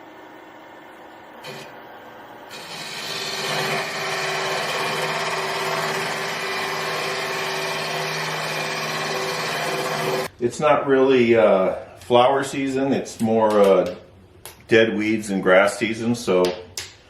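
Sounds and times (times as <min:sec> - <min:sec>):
wood lathe motor humming: 0:00.9 - 0:10.3
tool rushing on spinning wood: 0:02.5 - 0:10.3.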